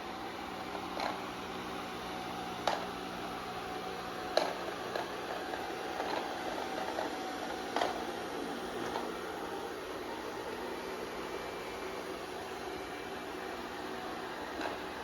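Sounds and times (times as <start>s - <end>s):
robot vacuum motor hum: 0.5s - 15.0s.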